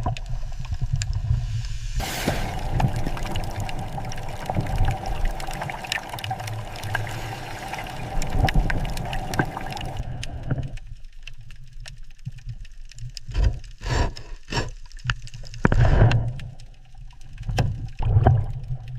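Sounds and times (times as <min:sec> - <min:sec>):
water gurgling and sloshing: 0:00.0 - 0:11.0
low rumble: 0:02.0 - 0:10.8.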